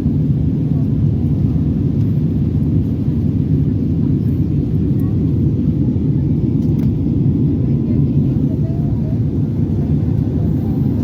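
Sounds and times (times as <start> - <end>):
jet engine cabin rumble: 0.0 - 11.0.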